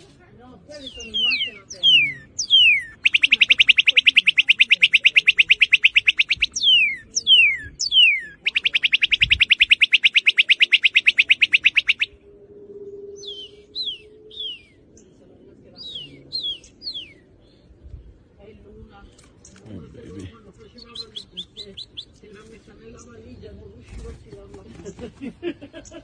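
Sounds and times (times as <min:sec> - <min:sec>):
bird whistles and trills: 0:00.8 - 0:12.2, 0:12.8 - 0:15.0, 0:15.8 - 0:17.3.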